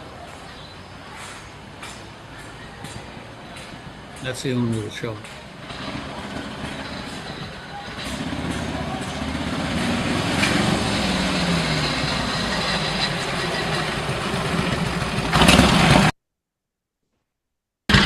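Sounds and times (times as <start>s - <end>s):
motorcycle engine running: 5.2s - 16.1s.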